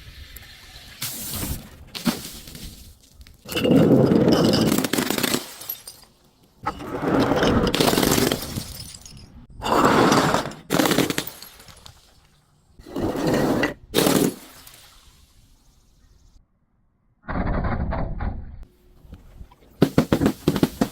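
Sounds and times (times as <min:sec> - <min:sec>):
glass smashing: 0:04.2 - 0:06.2, 0:07.7 - 0:09.5, 0:10.4 - 0:12.2.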